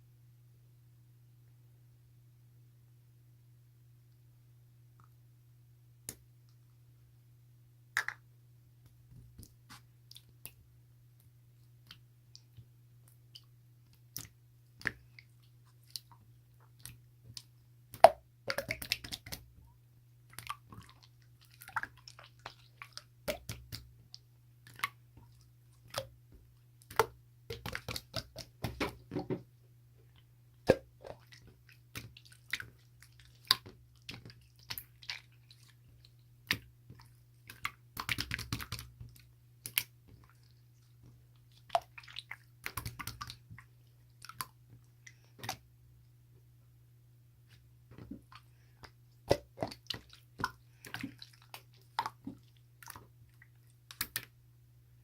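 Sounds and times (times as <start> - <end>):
faint steady low hum: 0.0 - 55.0
soft squishy handling noises: 8.9 - 17.7, 20.2 - 46.2, 47.4 - 54.4.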